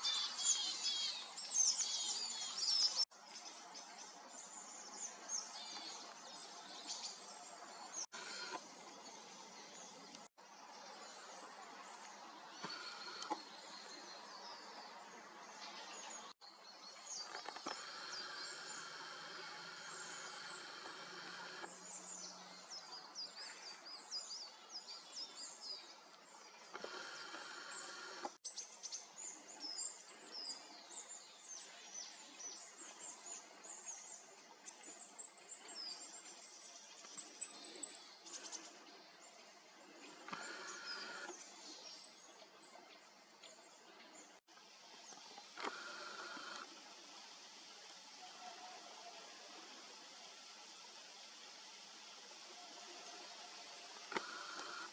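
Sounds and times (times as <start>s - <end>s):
faint background hiss: 0.0s - 54.9s
small birds chirping: 10.9s - 44.4s, 53.9s - 54.9s.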